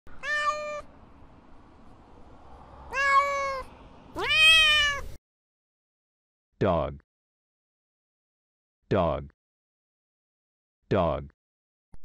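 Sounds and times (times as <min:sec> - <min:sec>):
cat meowing: 0:00.1 - 0:00.9, 0:02.9 - 0:05.2.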